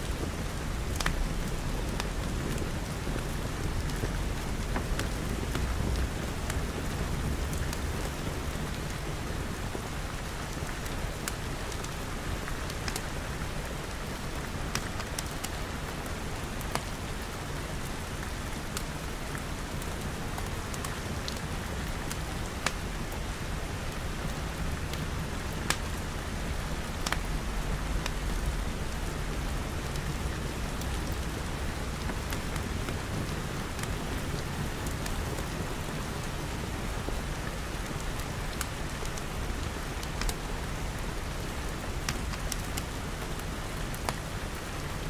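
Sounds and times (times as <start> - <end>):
rain falling on glass: 0.0 - 45.0
fire popping and crackling: 0.3 - 8.8, 23.9 - 29.0, 31.9 - 34.1.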